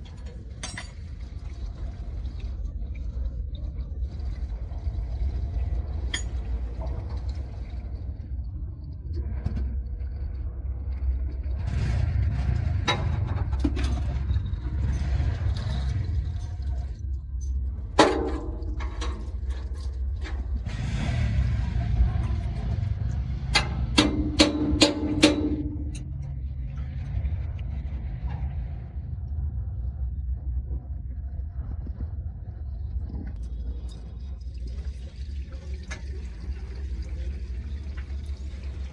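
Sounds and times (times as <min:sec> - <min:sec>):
metallic clanks and knocks: 0:00.0 - 0:01.4, 0:06.1 - 0:07.1, 0:12.9 - 0:14.4, 0:18.0 - 0:20.8, 0:23.5 - 0:26.5
low mechanical rumble: 0:00.0 - 0:38.9.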